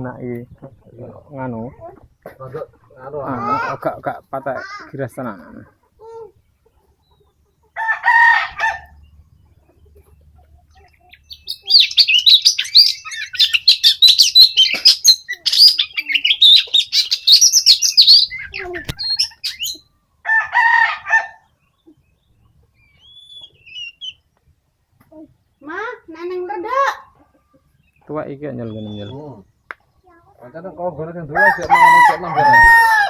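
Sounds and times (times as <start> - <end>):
bird warbling song: 8.7 - 20.2, 21.4 - 24.5, 27.3 - 30.2
harsh bird call: 11.0 - 19.9, 28.6 - 29.4.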